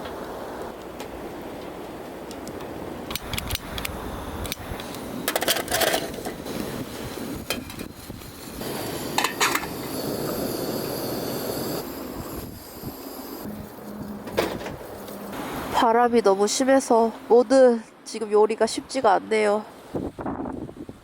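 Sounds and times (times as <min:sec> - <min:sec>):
wind noise: 0:00.0 - 0:16.2, 0:19.8 - 0:21.0.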